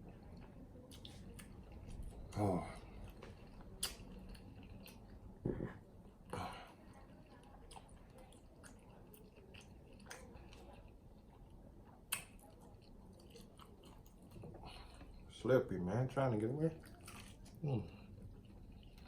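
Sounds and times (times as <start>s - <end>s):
wet chewing: 0.0s - 15.3s, 16.7s - 19.0s
sharp mouth smacks: 3.8s - 4.0s.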